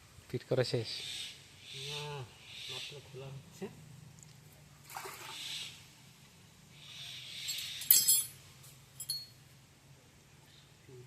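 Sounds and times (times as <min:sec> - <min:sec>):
metal tools clinking: 0:07.5 - 0:08.4, 0:09.0 - 0:09.4.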